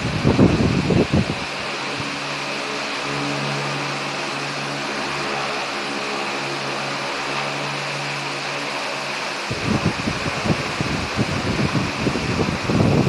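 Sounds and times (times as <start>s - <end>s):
wind buffeting microphone: 0.0s - 3.9s, 9.4s - 13.0s
wall fan motor hum: 0.0s - 13.0s.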